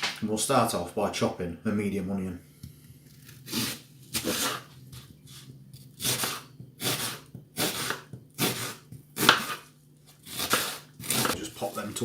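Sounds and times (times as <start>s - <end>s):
knife slicing onion on board: 2.6s - 11.4s.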